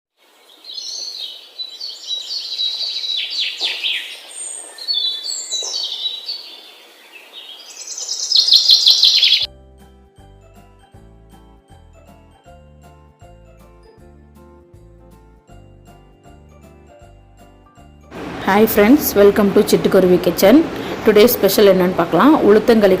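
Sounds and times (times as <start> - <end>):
songbirds chirping: 0.2 - 9.5
faint music: 18.1 - 23.0.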